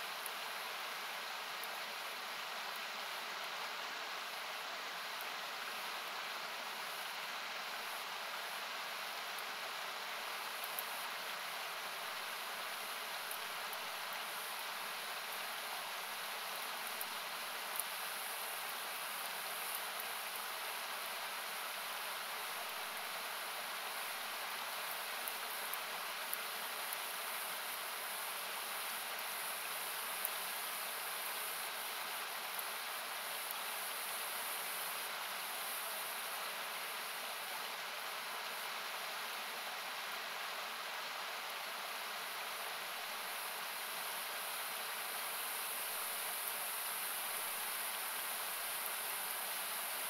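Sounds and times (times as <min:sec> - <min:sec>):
campfire crackling: 0:10.2 - 0:11.5, 0:23.0 - 0:36.3.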